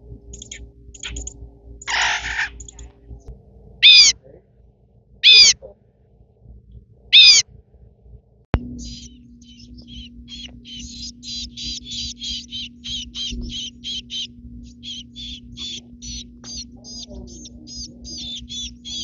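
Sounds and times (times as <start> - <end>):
sharp click: 0.3 - 1.4
baby crows begging calls: 1.8 - 2.8, 3.8 - 4.2, 5.2 - 5.6, 7.2 - 7.4, 8.8 - 19.0.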